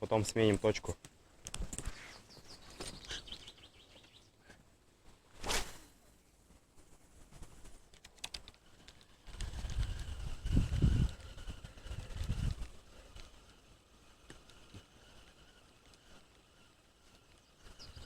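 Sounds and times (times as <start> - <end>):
small birds chirping: 1.5 - 4.6, 7.8 - 18.0
brief whoosh: 5.4 - 6.0
faint clicks: 7.9 - 10.1.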